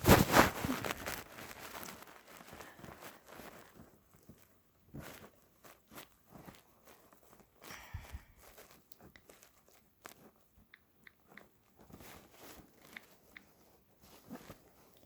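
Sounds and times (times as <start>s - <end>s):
faint clicks and taps: 8.4s - 15.0s.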